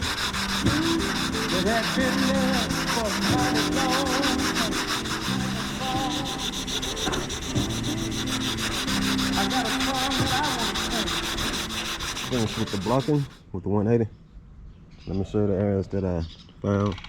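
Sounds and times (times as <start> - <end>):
sandpaper rubbing on filler: 0.0 - 13.4.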